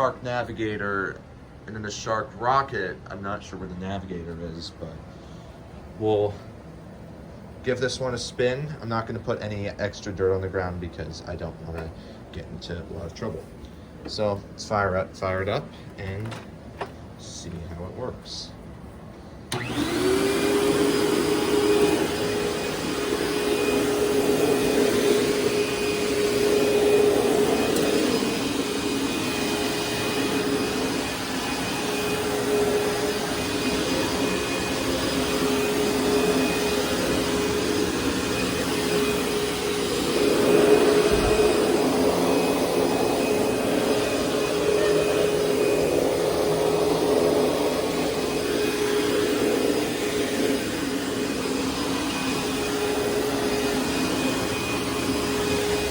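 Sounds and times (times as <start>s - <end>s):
vacuum cleaner motor whining: 19.5s - 55.9s.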